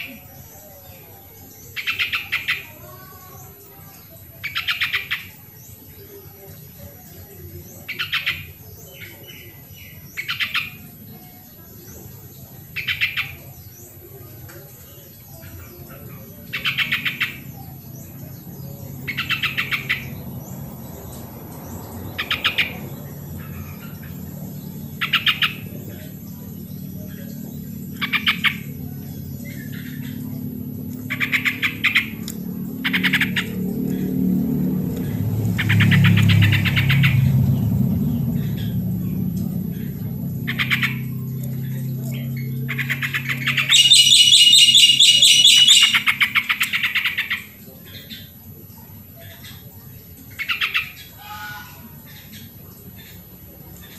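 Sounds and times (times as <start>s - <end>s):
bird chattering calls: 15.4s - 21.2s, 21.9s - 37.3s, 39.7s - 48.3s
low steady rumble: 17.3s - 47.7s
bird calling bubbling notes: 42.8s - 46.5s
faint short bird chirps: 43.6s - 46.2s.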